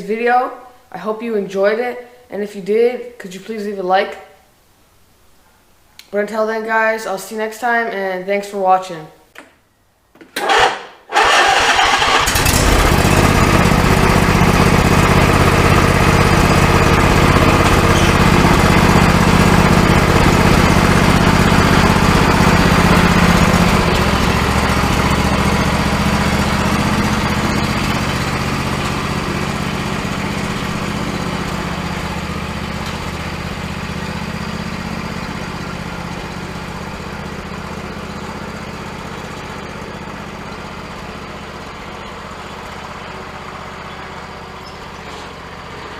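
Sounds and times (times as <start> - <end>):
riding mower engine running: 10.4 - 45.9.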